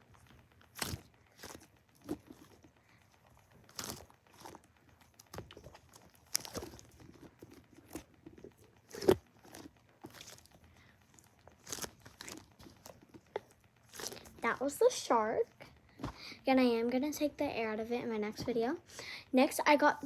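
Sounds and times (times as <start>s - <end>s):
squishy toy crinkling and crunching: 0.1s - 14.7s.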